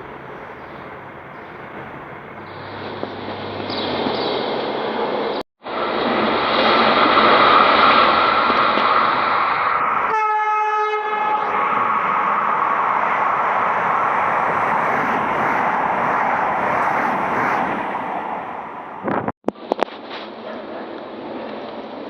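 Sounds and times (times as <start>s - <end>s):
train rushing past: 0.0s - 19.3s
train horn blast: 10.1s - 11.8s.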